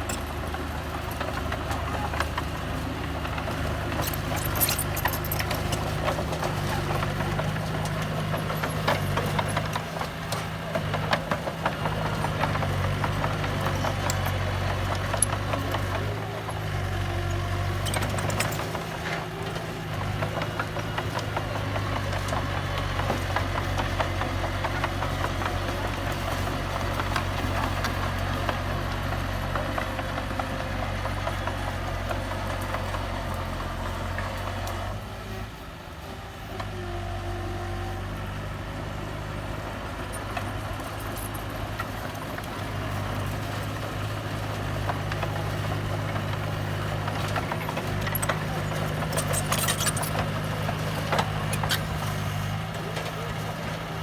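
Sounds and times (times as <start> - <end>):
heavy machinery diesel engine: 0.0 - 54.0
metallic clanking and rattling: 3.9 - 7.1, 47.2 - 52.2.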